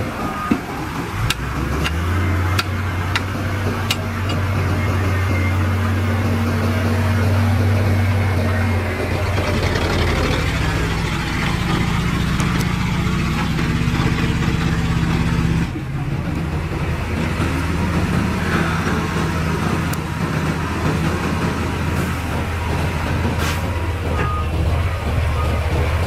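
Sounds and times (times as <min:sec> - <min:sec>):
heavy diesel engines running: 0:00.0 - 0:26.0.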